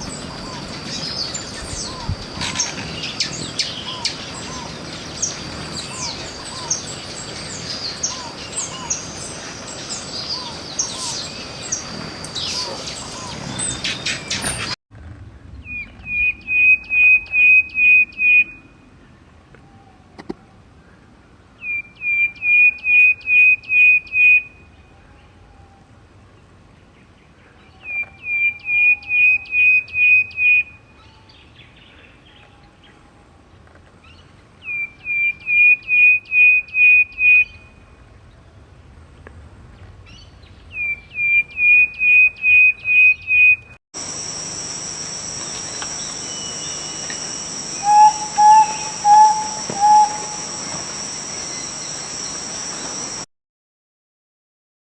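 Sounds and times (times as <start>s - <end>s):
bird chirping song: 0.0s - 14.8s, 40.0s - 53.2s.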